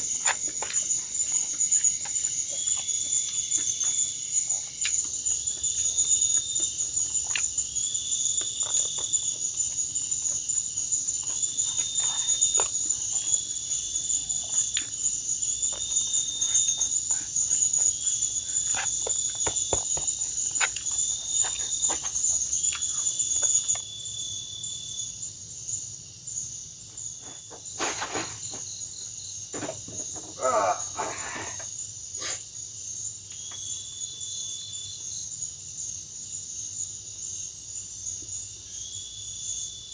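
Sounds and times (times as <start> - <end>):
insects chirring: 0.0 - 39.9
knocking and rustling: 18.6 - 22.3, 29.5 - 30.4.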